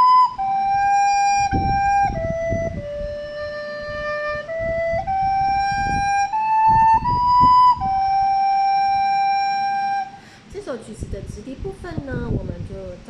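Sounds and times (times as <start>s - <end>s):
soprano recorder melody: 0.0s - 10.2s.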